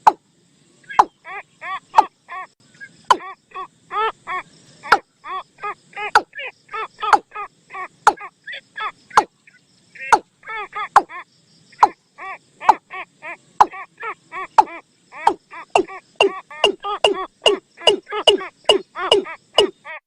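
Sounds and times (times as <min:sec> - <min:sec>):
bird call decoy notes: 0:00.8 - 0:01.3, 0:11.0 - 0:20.0.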